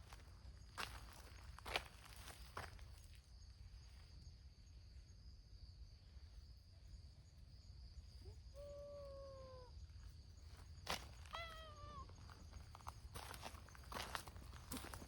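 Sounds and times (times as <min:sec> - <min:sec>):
faint high-pitched hum: 0:02.1 - 0:15.0
cat meowing: 0:11.3 - 0:12.1.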